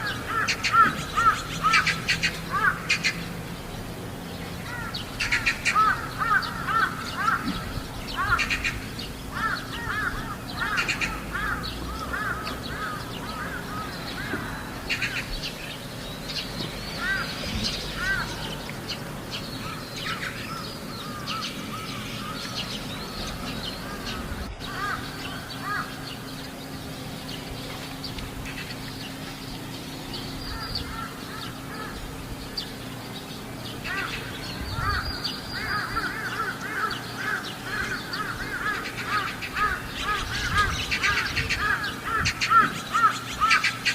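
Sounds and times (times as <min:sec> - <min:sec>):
crows cawing: 0:00.0 - 0:03.3, 0:04.6 - 0:15.4, 0:16.9 - 0:18.7, 0:19.4 - 0:26.3, 0:30.4 - 0:32.2, 0:33.8 - 0:43.9.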